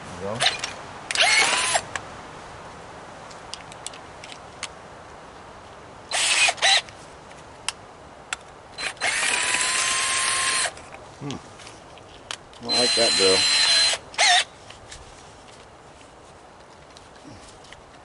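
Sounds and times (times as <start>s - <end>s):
power drill whining: 1.1s - 1.8s, 6.1s - 6.8s, 8.8s - 10.8s, 12.6s - 14.5s.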